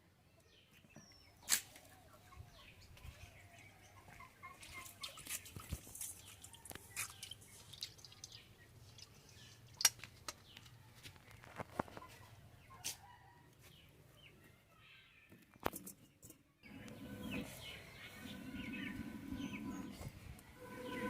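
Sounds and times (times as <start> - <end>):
chickens clucking: 1.7 - 8.3, 11.3 - 13.1.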